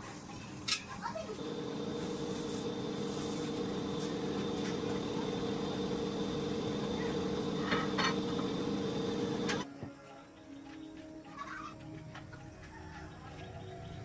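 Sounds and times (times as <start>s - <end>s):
machine humming: 0.0s - 9.7s.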